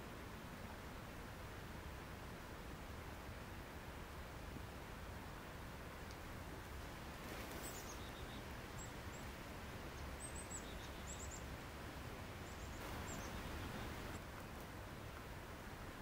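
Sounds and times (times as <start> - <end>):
outdoor background hiss: 0.0 - 16.0
small bird chirping: 7.5 - 9.3, 9.9 - 11.5, 12.4 - 14.2.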